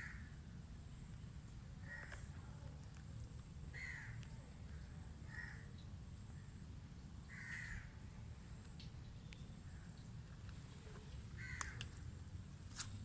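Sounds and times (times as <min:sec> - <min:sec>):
bird calling: 0:11.4 - 0:11.9.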